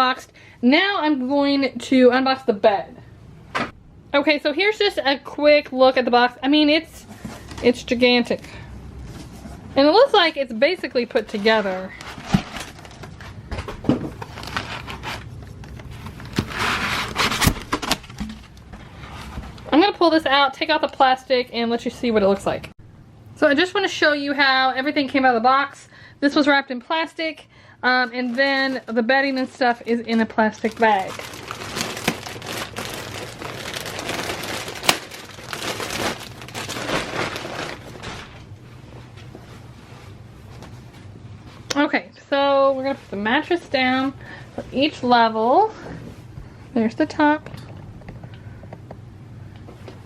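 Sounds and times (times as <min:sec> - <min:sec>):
plastic wrapping crinkling: 0:09.8 - 0:19.7, 0:27.9 - 0:38.5
sharp plastic crackle: 0:11.4 - 0:19.4, 0:28.1 - 0:38.5.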